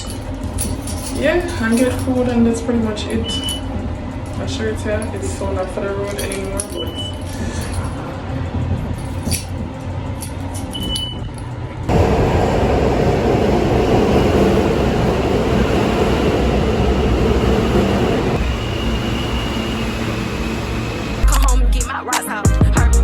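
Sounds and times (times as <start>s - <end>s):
moving vehicle rumbling: 11.9s - 21.5s.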